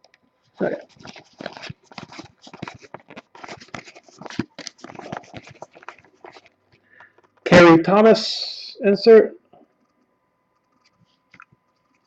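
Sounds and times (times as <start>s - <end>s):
trading cards sliding and flipping: 0.6s - 7.4s.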